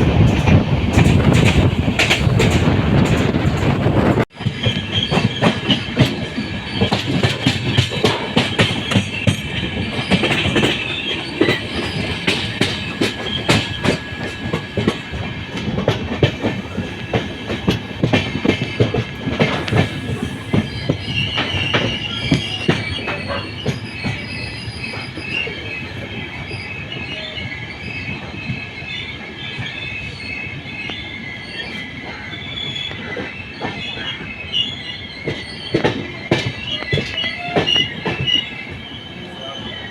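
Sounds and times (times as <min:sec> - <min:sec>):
wheels clattering over rail joints: 0:00.0 - 0:25.6
train wheel squeal: 0:00.0 - 0:39.9.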